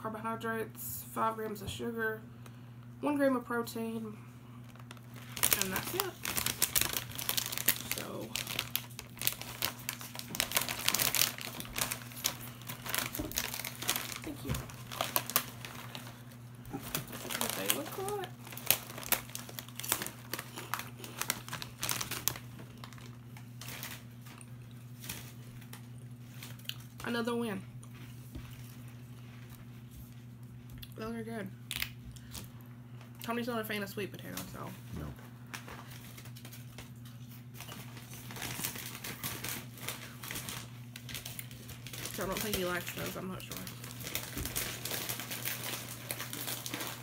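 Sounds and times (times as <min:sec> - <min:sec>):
low electrical hum: 0:00.0 - 0:47.0
crisps being crunched: 0:04.6 - 0:27.2, 0:31.7 - 0:33.3, 0:35.4 - 0:47.0
snack bag crinkling: 0:04.6 - 0:27.2, 0:31.7 - 0:33.3, 0:35.4 - 0:47.0.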